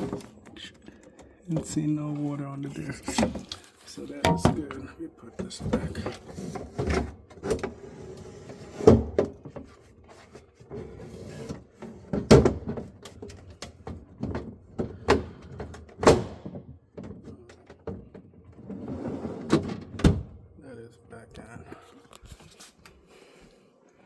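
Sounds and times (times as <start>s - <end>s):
knocks and clatters of parts: 3.1s - 6.2s, 12.2s - 18.5s.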